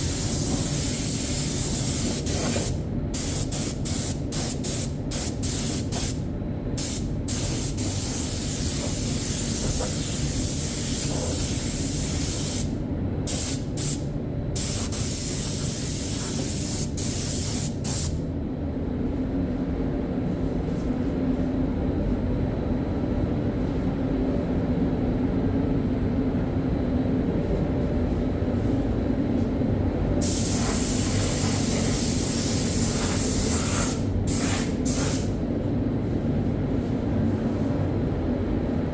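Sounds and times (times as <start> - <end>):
spray gun hissing: 0.0 - 6.2, 6.8 - 12.6, 14.6 - 18.1, 30.2 - 35.3
steady low hum: 0.0 - 38.9.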